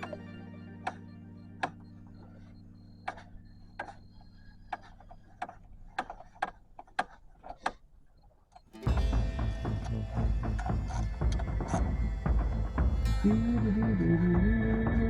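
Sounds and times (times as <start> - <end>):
background music: 0.0 - 5.9, 8.8 - 15.0.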